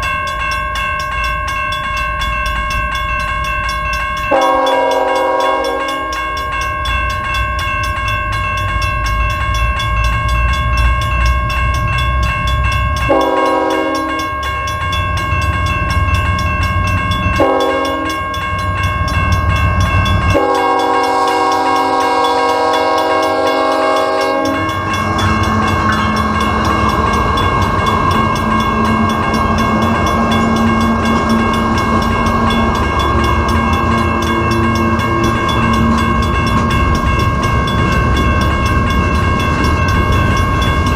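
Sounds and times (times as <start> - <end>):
high ringing tone: 0.0 - 40.9
train wheels on rails: 0.0 - 40.9
diesel locomotive horn: 4.3 - 6.2, 13.1 - 14.3, 17.4 - 18.2, 20.3 - 27.4
locomotive engine rumble: 14.9 - 40.9.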